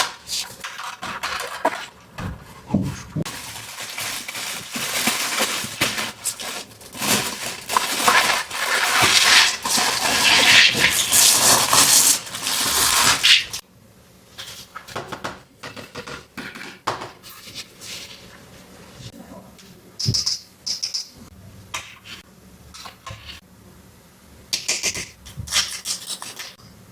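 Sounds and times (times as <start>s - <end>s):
packaging rustling: 3.3s - 13.6s.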